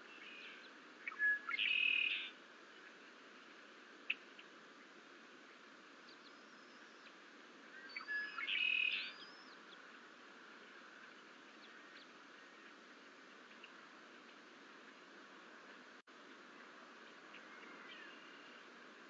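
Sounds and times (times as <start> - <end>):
faint bird chirps: 0.0 - 2.4, 6.0 - 9.9, 17.3 - 18.7
steady hiss: 0.0 - 19.0.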